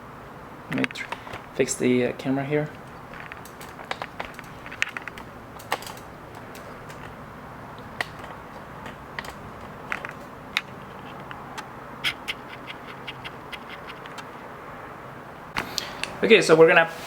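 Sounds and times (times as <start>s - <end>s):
low background hum: 0.0s - 17.0s
hands handling small objects: 0.7s - 1.7s, 2.7s - 14.5s.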